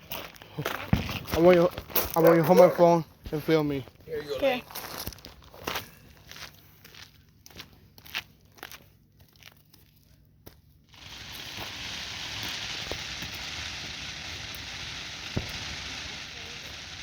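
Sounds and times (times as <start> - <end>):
firework hissing: 10.9 - 17.0.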